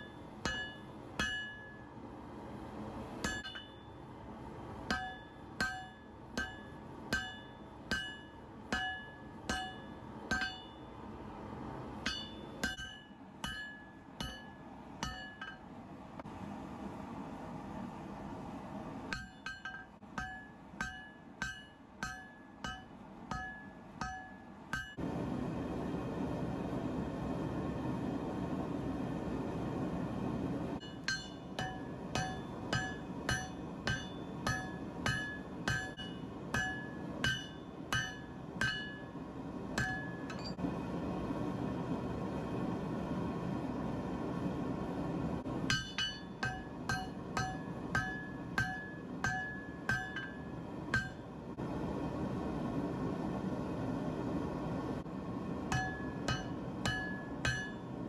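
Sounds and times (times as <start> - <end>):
hammer ringing on anvil: 0.0 - 1.9, 3.2 - 4.0, 4.8 - 11.0, 12.0 - 15.7, 19.1 - 25.0, 30.8 - 40.6, 45.6 - 51.4, 55.7 - 58.0.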